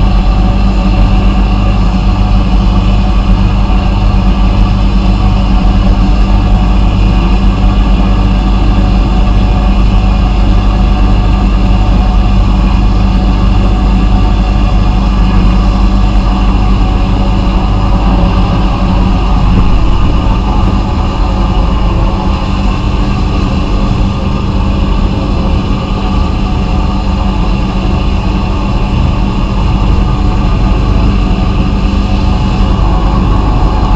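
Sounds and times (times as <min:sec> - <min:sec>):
vapor blasting machine drone: 0:00.0 - 0:33.9.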